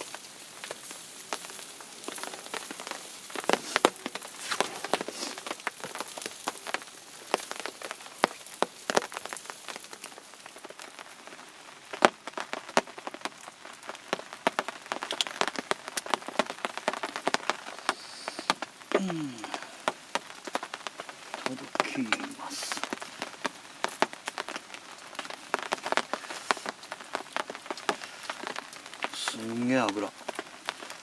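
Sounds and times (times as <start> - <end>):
fish sizzling over charcoal: 0.0 - 31.0
fat spattering with sharp pops: 15.0 - 16.1.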